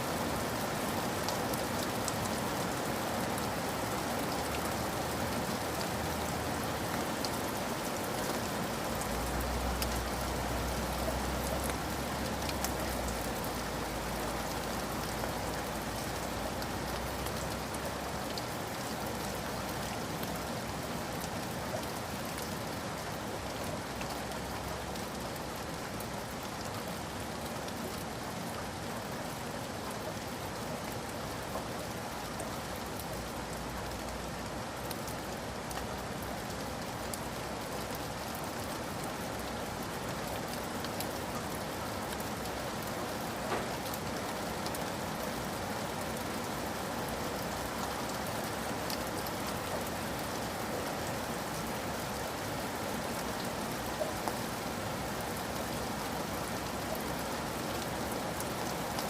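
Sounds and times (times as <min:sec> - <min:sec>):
steady rain falling: 0:00.0 - 0:59.0
raindrop ticks: 0:42.1 - 0:44.9.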